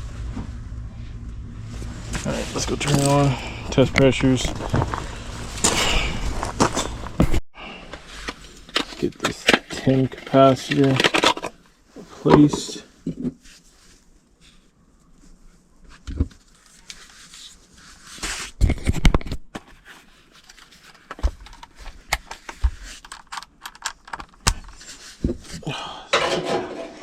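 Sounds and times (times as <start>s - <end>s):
loud clatter of tools: 2.1s - 7.3s, 26.2s - 27.0s
tools clicking and scraping: 2.2s - 7.4s.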